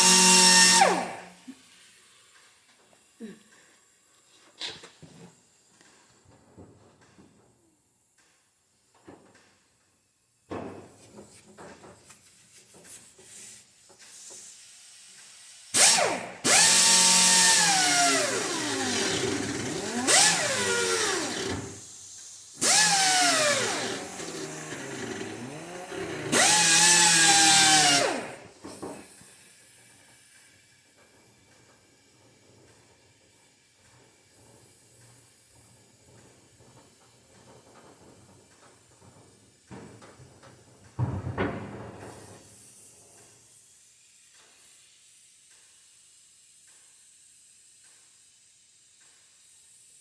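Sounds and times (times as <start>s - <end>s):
power drill running: 0.0s - 1.6s, 15.8s - 29.2s.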